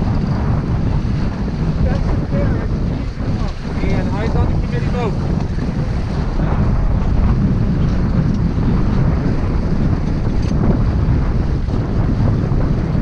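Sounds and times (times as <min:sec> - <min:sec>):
low rumble: 0:00.0 - 0:13.0
water rushing along hull: 0:00.0 - 0:13.0
wind buffeting microphone: 0:00.0 - 0:13.0.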